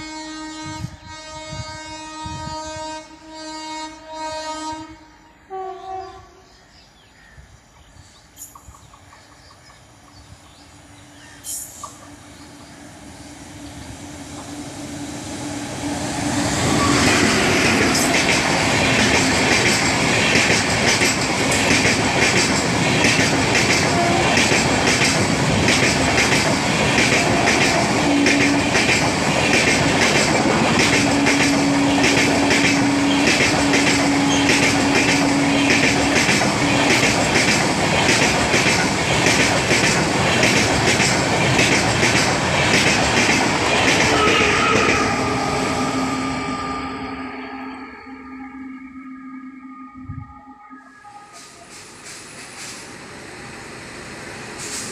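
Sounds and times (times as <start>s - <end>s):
train wheels clattering over rail joints: 16.9s - 45.1s.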